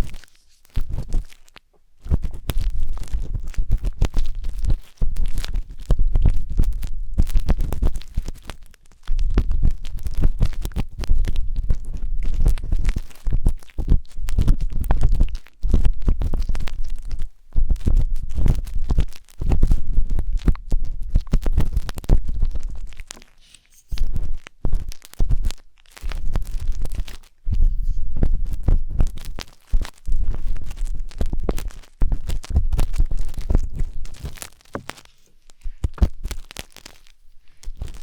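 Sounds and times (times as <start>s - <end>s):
wooden skewer scraping microphone: 0.0s - 1.4s, 17.8s - 36.9s.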